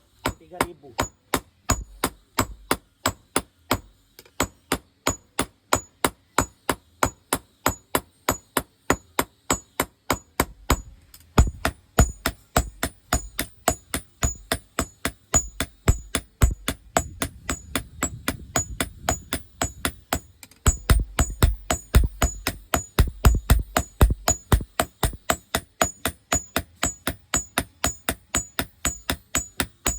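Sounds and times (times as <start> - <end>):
hammer striking hot steel on anvil: 0.2 - 29.9
heavy deep hammer thuds: 11.4 - 14.6, 15.4 - 25.4.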